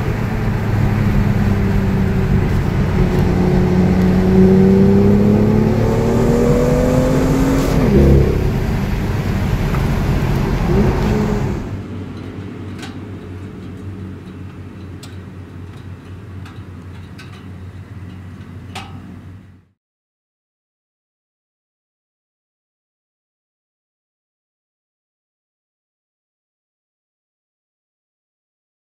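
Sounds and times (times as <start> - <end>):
car engine accelerating hard: 0.0 - 14.7.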